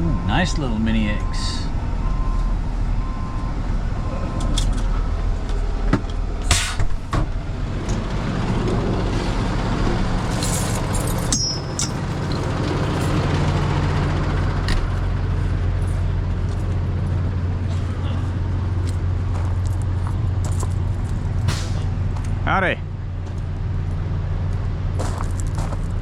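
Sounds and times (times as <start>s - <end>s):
truck diesel engine running: 0.0s - 26.0s
short hiss of air: 6.5s - 7.0s.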